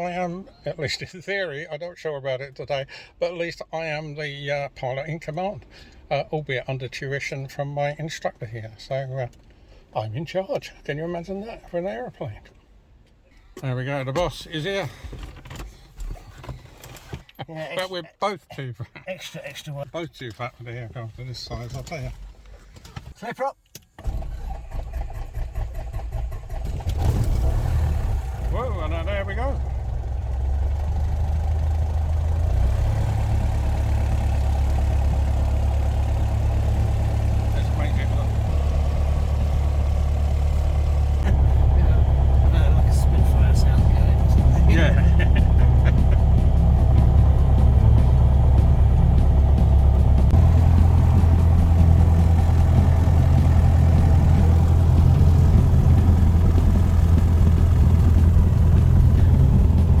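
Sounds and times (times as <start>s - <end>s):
light aircraft engine and propeller: 24.0s - 60.0s.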